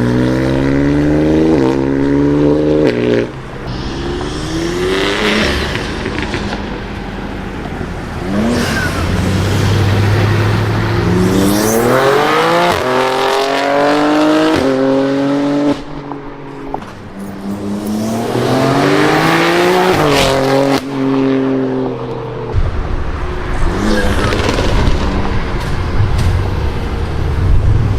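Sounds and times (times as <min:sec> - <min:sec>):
car engine accelerating hard: 0:00.0 - 0:15.8.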